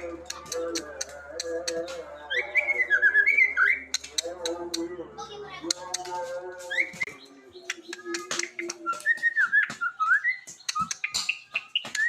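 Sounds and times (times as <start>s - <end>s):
beatbox clicks and pops: 10.6s - 11.4s.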